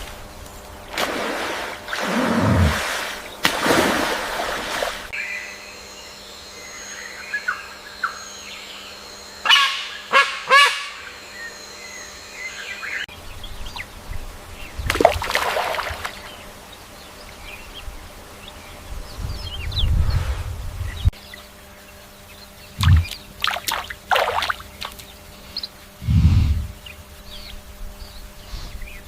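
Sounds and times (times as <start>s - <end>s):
loud bird calls: 20.9s - 26.0s
low rumble: 22.8s - 23.2s, 26.0s - 26.9s.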